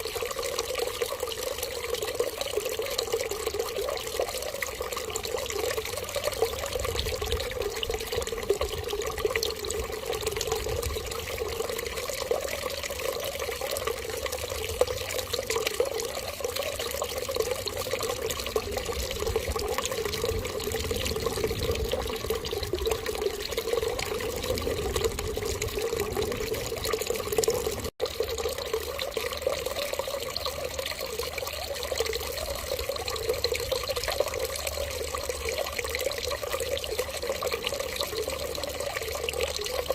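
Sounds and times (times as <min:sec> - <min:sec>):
running water splashing: 0:00.0 - 0:39.9.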